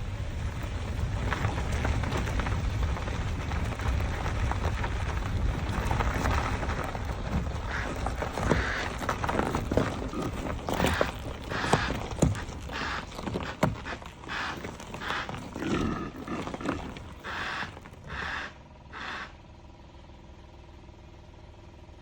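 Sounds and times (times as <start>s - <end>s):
impala grunting: 7.7s - 19.4s.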